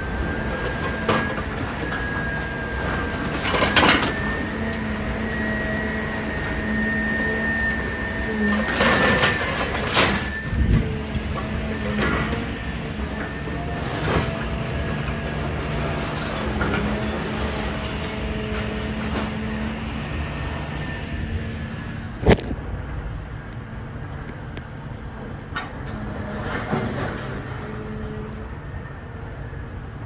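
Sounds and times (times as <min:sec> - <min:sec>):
machine hum: 0:00.0 - 0:22.6.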